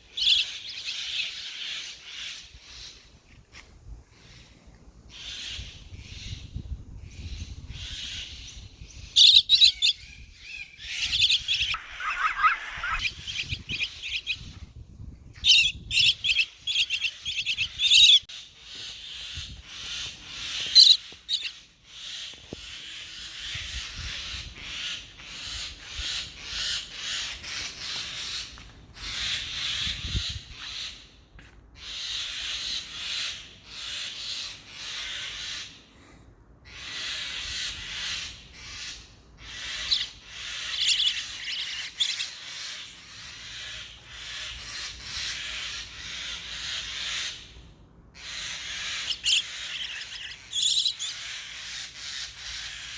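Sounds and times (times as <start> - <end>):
baby bird chirping: 0.0 - 2.4, 7.8 - 14.6, 15.3 - 18.3, 19.9 - 21.6, 39.5 - 42.8, 48.3 - 52.9.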